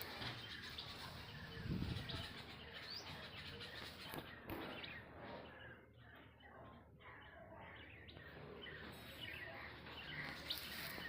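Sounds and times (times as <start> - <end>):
birds chirping: 0.0 - 11.0
outdoor background noise: 0.0 - 11.0.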